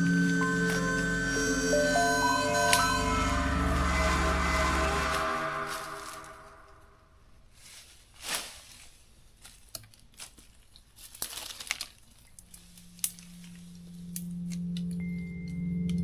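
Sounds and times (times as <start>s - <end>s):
low background music: 0.0s - 6.8s, 12.8s - 16.0s
crackling and rustling material: 7.5s - 14.8s.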